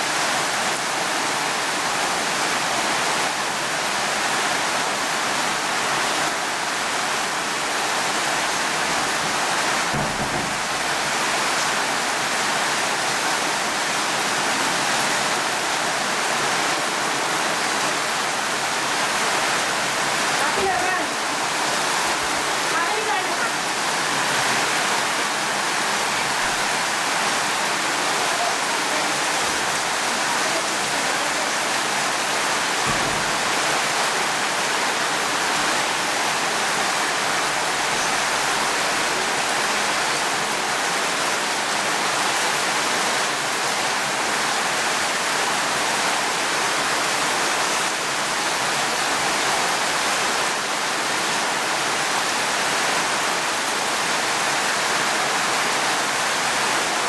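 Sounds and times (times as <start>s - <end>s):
dense rainfall: 0.0s - 57.0s.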